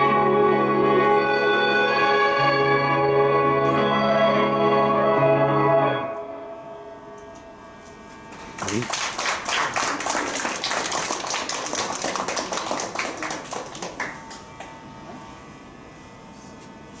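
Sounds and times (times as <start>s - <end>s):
audience applause: 8.4s - 14.6s
people cheering: 8.6s - 14.3s.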